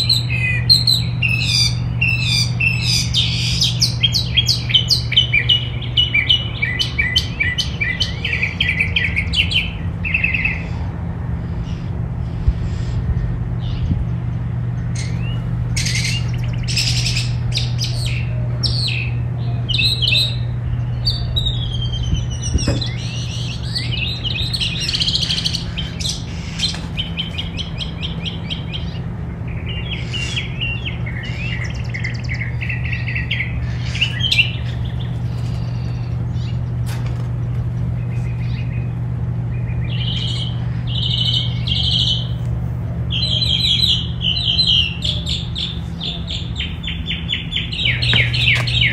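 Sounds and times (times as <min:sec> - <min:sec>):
songbirds chirping and singing: 0:00.0 - 0:48.9
steady low hum: 0:00.0 - 0:48.9.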